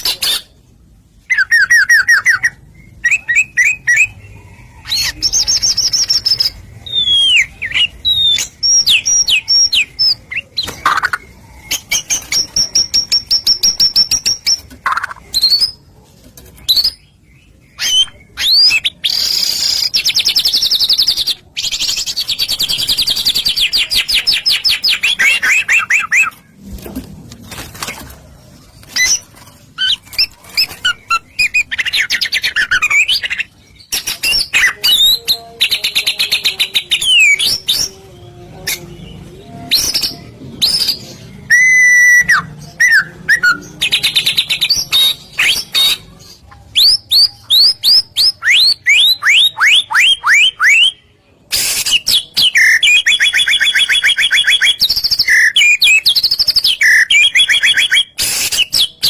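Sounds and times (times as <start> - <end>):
bird singing whistled phrases: 39.7 - 43.6.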